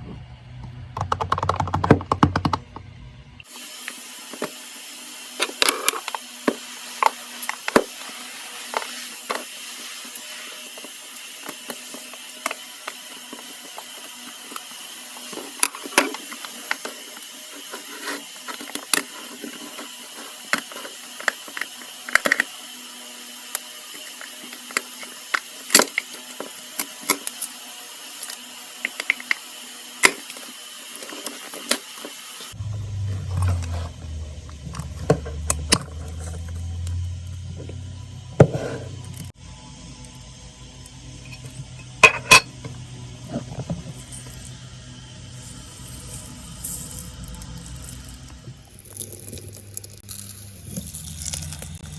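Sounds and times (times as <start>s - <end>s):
toys and packaging handled: 45.5s - 51.9s.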